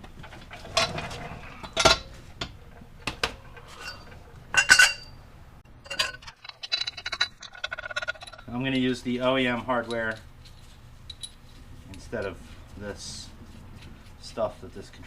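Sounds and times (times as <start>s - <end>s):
steel parts clinking and clanking: 0.0s - 5.2s, 5.8s - 12.4s.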